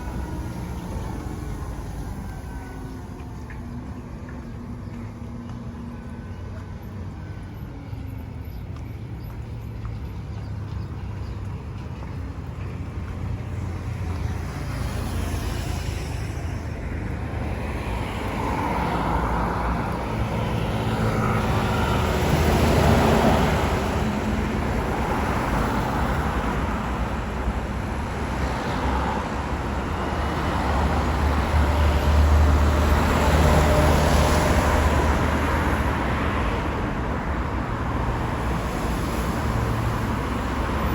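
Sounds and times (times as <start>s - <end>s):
cars driving past: 8.2s - 40.9s.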